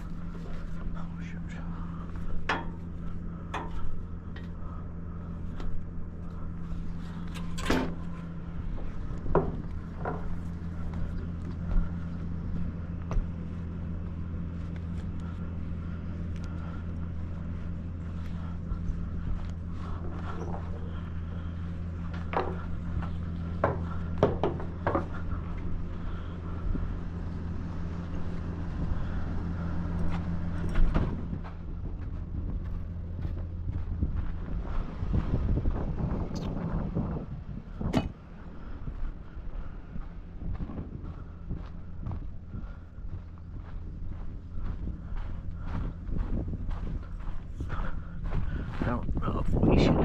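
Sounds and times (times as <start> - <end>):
truck engine and road drone: 0.0 - 50.0
sharp knocks and rattles: 2.2 - 4.6, 7.2 - 12.0, 21.9 - 25.8.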